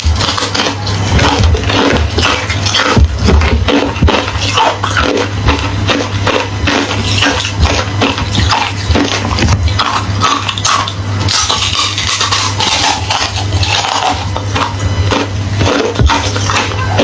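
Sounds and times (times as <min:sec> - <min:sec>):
ice being chewed: 0:00.0 - 0:17.0
steady low hum: 0:00.0 - 0:17.0.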